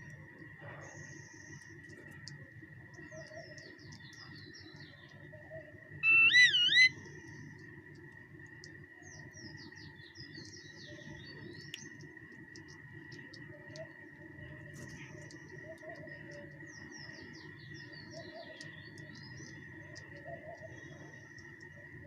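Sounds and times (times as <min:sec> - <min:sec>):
small birds chirping: 0:00.0 - 0:22.0
loud wavering whistled call: 0:05.4 - 0:07.0
steady high-pitched tone: 0:06.0 - 0:07.0.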